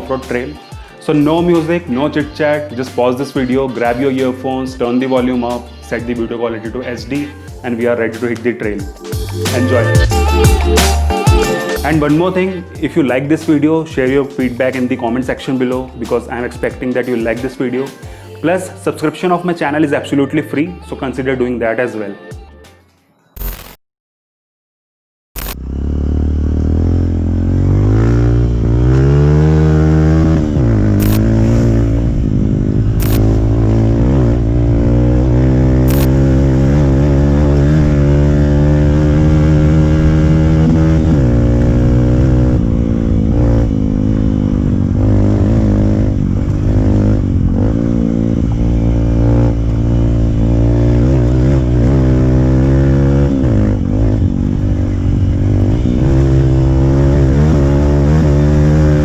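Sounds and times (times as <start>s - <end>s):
motorcycle engine revving: 25.4s - 59.0s.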